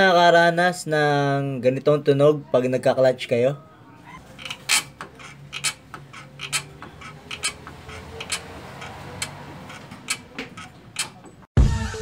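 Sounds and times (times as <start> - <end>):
clutch pedal squeaking: 4.0 - 11.5.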